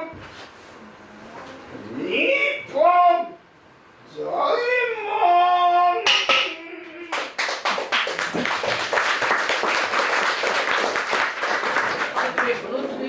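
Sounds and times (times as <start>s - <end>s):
audience applause: 7.1s - 12.8s.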